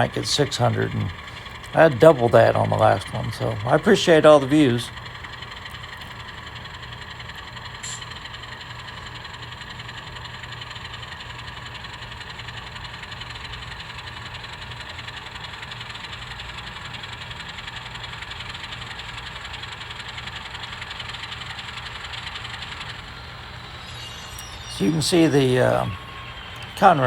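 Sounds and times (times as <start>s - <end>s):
model train motor hum: 0.0s - 27.0s.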